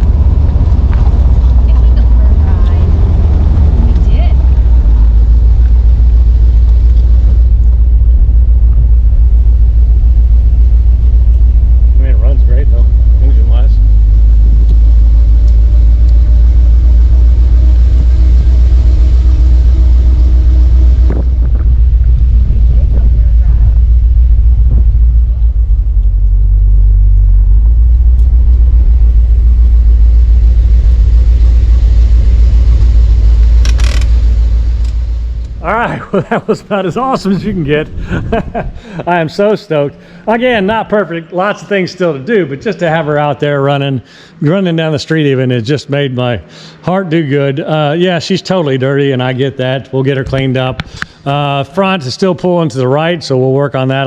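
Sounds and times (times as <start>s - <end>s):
car engine low rumble: 0.0s - 54.0s
wind noise on microphone: 21.0s - 26.8s.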